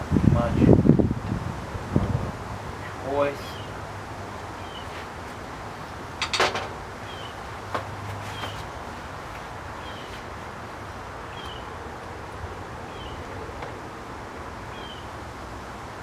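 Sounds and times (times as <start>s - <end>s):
background noise: 0.0s - 16.0s
bird chirping: 2.6s - 10.2s.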